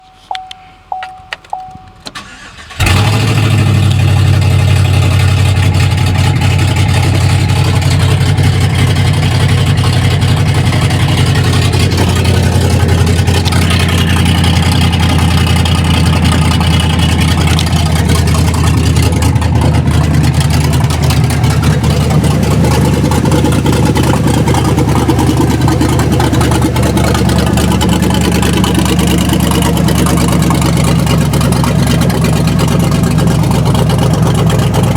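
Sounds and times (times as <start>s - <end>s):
short beeps: 0.0s - 2.4s
car engine starting and idling: 0.0s - 34.9s.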